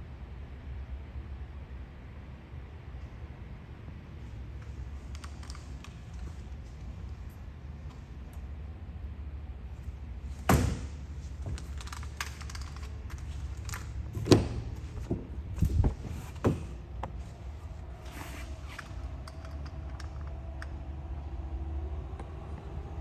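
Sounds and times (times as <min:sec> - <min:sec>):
sharp knocks and thuds: 0:10.4 - 0:11.8.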